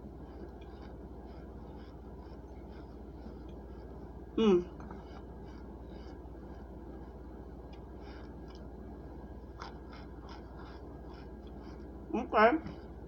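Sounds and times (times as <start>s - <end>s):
person chewing and crunching: 0.1s - 3.8s, 7.7s - 12.0s.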